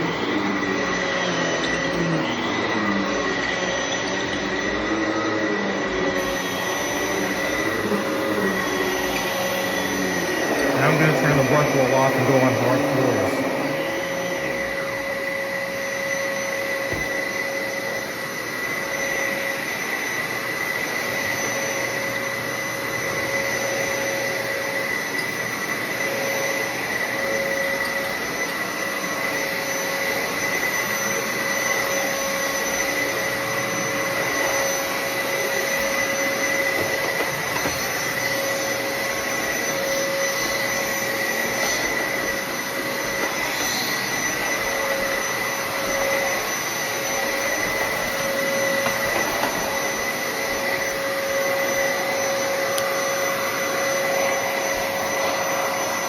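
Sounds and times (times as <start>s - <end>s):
vacuum cleaner motor whine: 0.0s - 56.0s.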